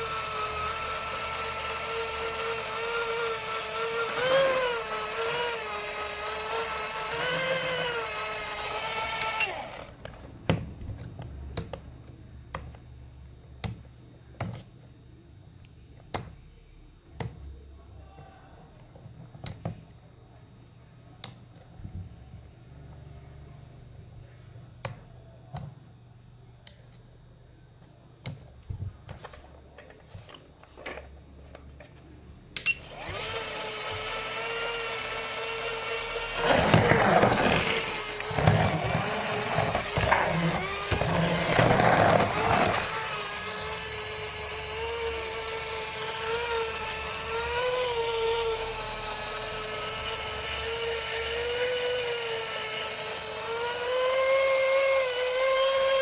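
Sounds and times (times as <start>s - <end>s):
small electric motor whining: 0.0s - 10.0s, 32.7s - 56.0s
rough rattling noise: 36.4s - 43.0s.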